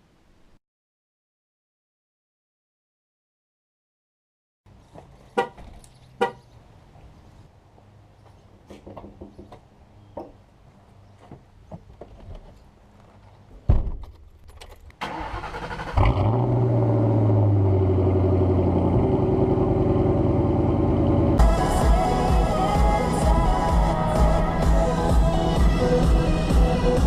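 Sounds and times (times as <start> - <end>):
loud thump: 13.7 - 14.1
car engine starting and idling: 14.7 - 27.0.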